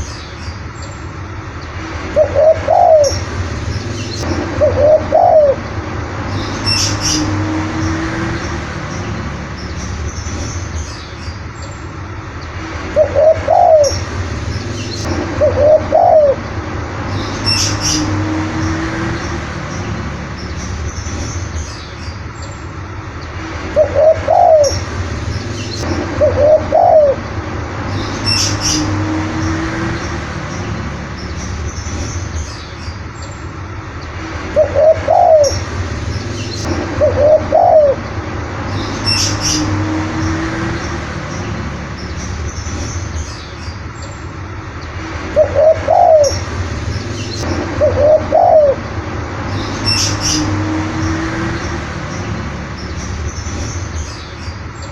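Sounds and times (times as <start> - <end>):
small birds chirping: 0.0 - 54.9
dove cooing: 2.2 - 3.2, 4.6 - 5.6, 13.0 - 14.0, 15.4 - 16.4, 23.8 - 24.8, 26.2 - 27.2, 34.6 - 35.6, 37.0 - 38.0, 45.4 - 46.4, 47.8 - 48.8
steady low hum: 24.3 - 32.4.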